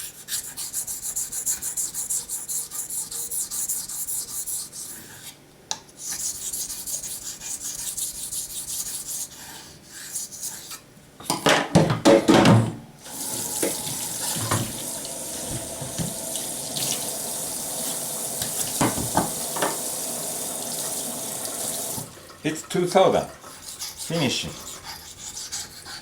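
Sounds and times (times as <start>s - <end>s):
knife scraping on whetstone: 6.0s - 10.9s, 23.4s - 26.0s
water running from tap: 13.0s - 23.6s
knocks: 18.8s - 19.8s.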